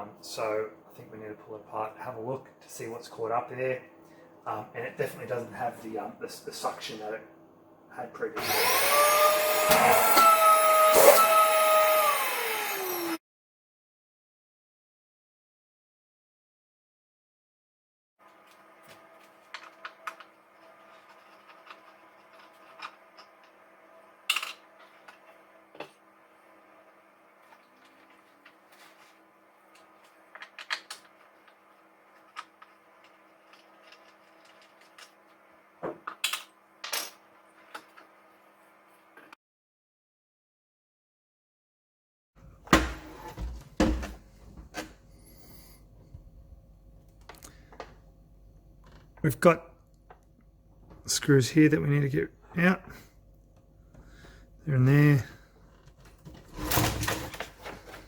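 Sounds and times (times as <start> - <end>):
plastic parts clicking and knocking: 29.8 - 31.6
plastic parts rattling: 32.2 - 35.2
vacuum cleaner body knocking: 42.7 - 44.8.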